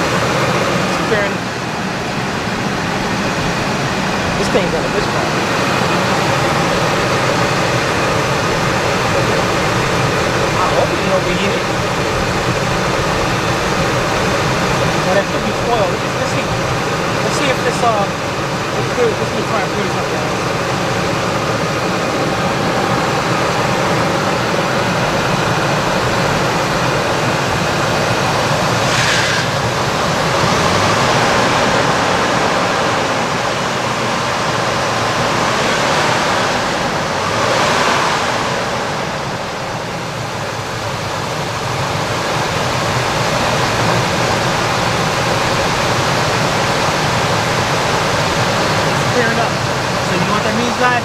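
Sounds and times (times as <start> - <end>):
engine running with a misfire: 0.0 - 51.0
brief hiss: 28.8 - 29.6.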